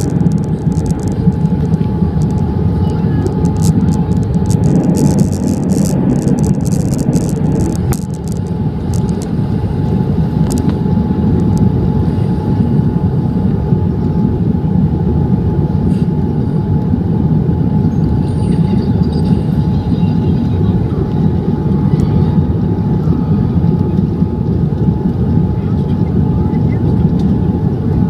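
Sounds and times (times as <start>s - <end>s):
airliner engines rumbling: 0.0s - 28.0s
steady cabin hum: 0.0s - 28.0s.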